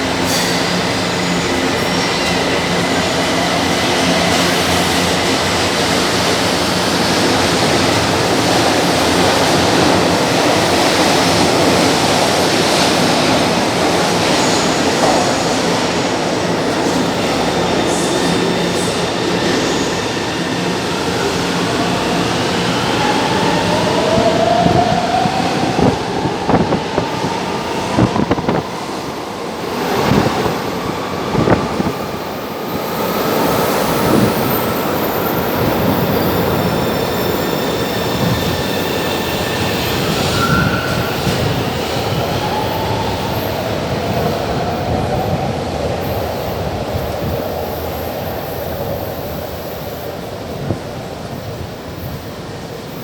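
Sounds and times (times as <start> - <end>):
metro train rumbling: 0.0 - 53.0.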